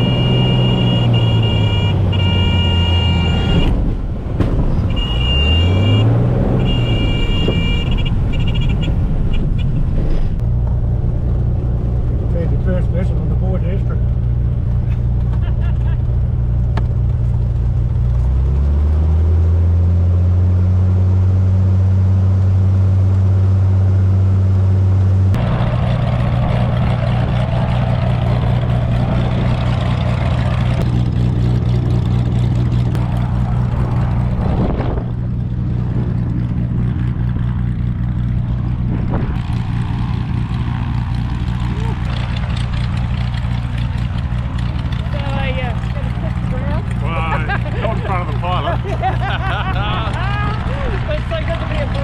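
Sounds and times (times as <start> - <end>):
light aircraft engine and propeller: 19.2 - 52.0.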